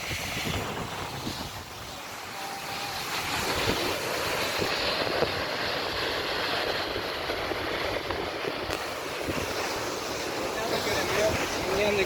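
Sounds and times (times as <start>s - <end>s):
waterfall rushing: 0.0s - 12.0s
wind buffeting microphone: 0.0s - 12.0s.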